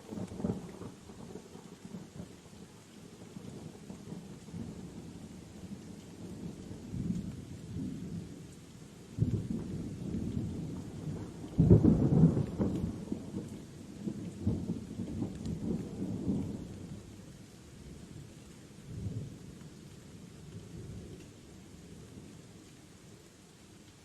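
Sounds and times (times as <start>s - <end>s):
steady rain: 0.0s - 24.0s
thunder rumbling: 9.2s - 17.0s.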